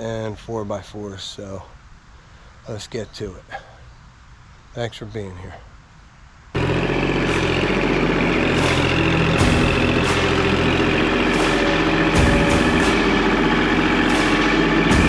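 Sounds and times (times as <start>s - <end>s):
sawmill gas engine running: 6.6s - 15.0s.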